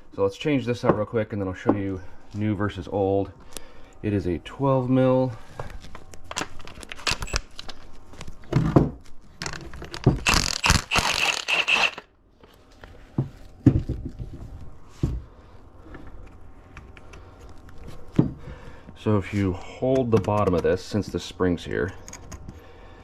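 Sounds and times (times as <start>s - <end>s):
wrench and metal parts clicking: 9.4s - 12.0s.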